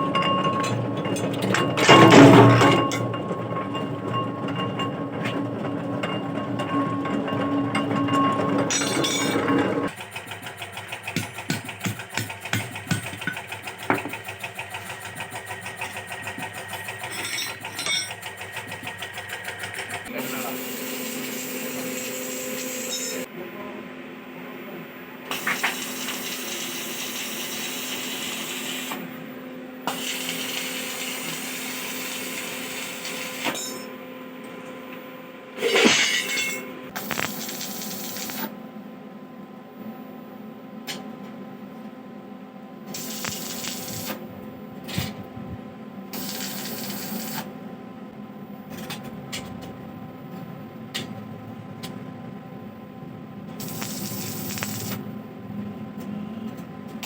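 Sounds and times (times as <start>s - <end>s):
loud metal clank: 0.2s - 5.5s, 35.6s - 36.7s
power tool running: 8.6s - 23.3s, 25.3s - 29.1s, 29.8s - 33.8s, 35.6s - 38.5s, 42.9s - 44.3s, 46.1s - 47.5s, 53.6s - 55.0s.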